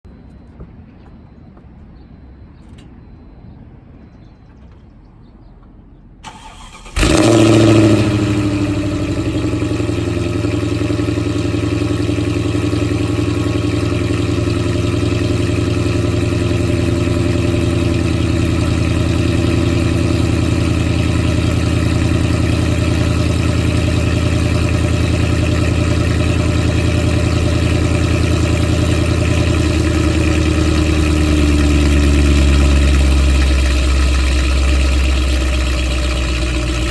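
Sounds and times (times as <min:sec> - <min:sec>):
car engine fast idle: 0:06.2 - 0:36.9
starter motor turning: 0:06.3 - 0:08.5.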